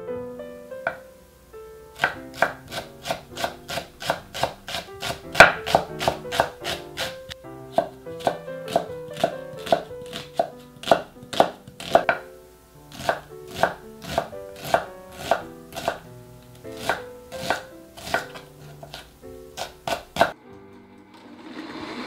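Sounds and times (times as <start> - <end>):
soft background music: 0.0 - 22.0
knife chopping on wooden board: 2.0 - 12.2, 12.9 - 16.0, 16.7 - 20.4.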